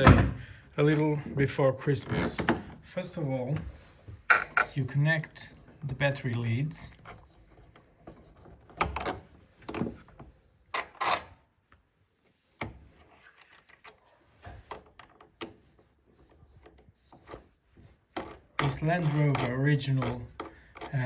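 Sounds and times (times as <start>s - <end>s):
metallic clicks and scrapes: 12.6s - 21.0s.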